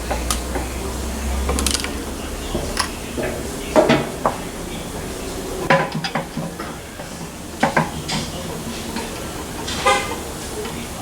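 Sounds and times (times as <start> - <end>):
metal tools clanking: 0.0 - 10.9.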